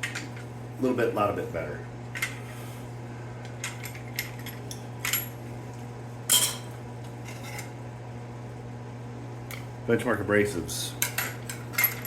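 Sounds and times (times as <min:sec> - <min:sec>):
steady low hum: 0:00.0 - 0:12.0
metal clinking and clattering: 0:11.0 - 0:12.0.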